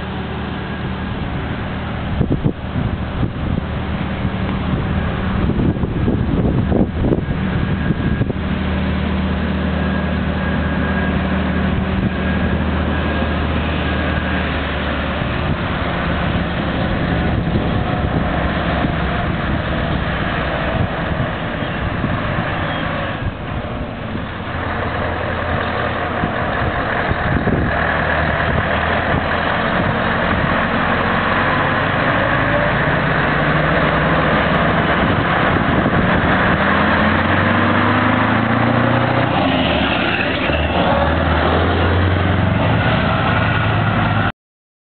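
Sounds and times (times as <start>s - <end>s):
diesel truck engines running: 0.0s - 44.3s.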